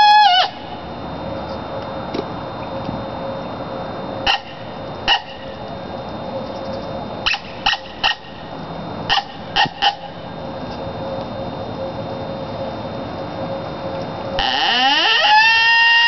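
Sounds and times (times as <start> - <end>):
horn call barks: 4.2 - 5.4, 7.2 - 8.3, 9.1 - 10.2.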